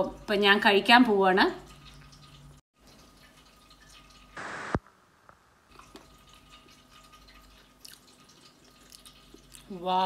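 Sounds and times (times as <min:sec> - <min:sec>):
brief loud hiss: 0:04.4 - 0:04.9.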